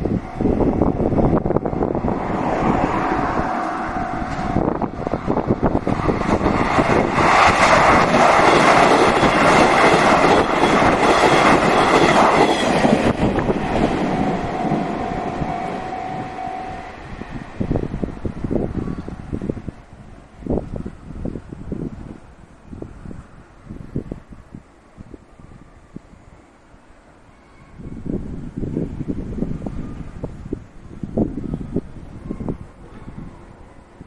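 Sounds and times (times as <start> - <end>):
train rumble: 0.0 - 34.0
train wheels clattering on rails: 3.6 - 16.2.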